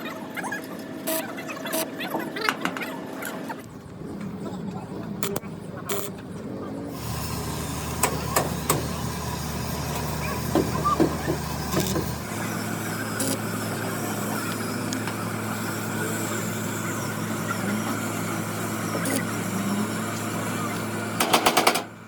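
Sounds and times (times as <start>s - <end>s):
motor running: 6.9s - 22.0s.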